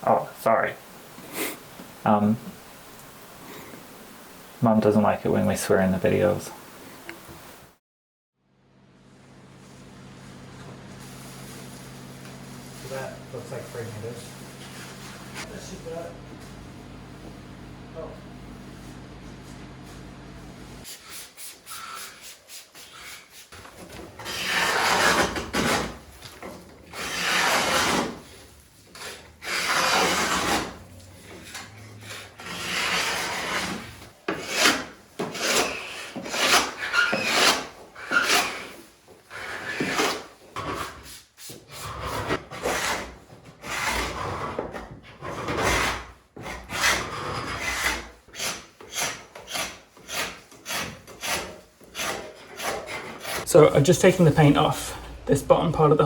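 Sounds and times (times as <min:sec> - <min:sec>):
scraper rasping on wood: 0:24.2 - 0:26.0, 0:26.9 - 0:28.3, 0:28.9 - 0:38.8, 0:45.2 - 0:53.5.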